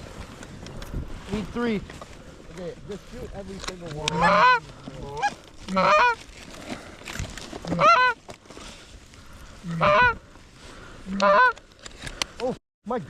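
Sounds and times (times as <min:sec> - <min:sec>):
goose honking: 0:03.9 - 0:06.2, 0:07.7 - 0:08.2, 0:09.6 - 0:10.2, 0:11.0 - 0:11.6.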